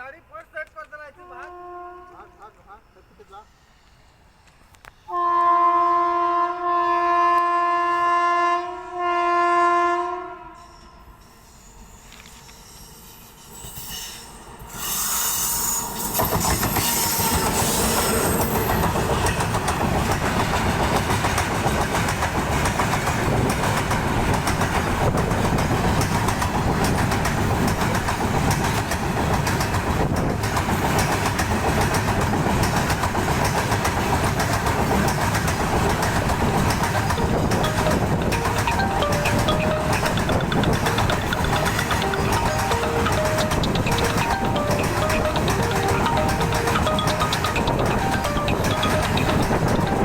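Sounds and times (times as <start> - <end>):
train wheels clattering over rails: 16.1 - 50.0.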